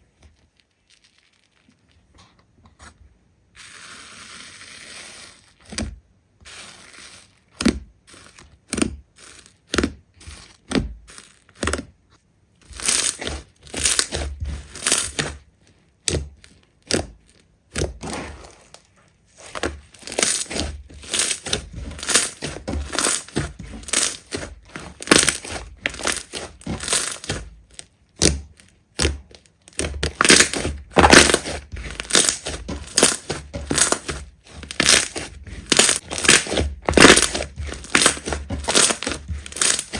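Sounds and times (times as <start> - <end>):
slime squeezed crackling and popping: 20.0 - 39.9.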